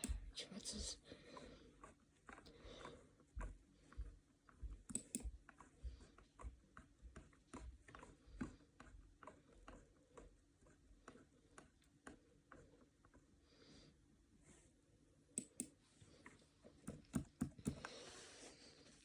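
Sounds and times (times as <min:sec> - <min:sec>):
computer mouse clicking: 0:00.0 - 0:00.3, 0:04.8 - 0:05.7, 0:15.3 - 0:15.8, 0:16.8 - 0:18.0.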